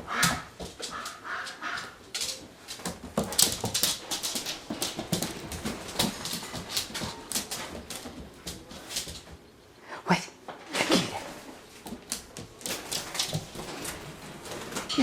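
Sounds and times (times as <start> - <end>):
scratchy clicks and rustling: 1.8 - 9.5, 11.6 - 15.0.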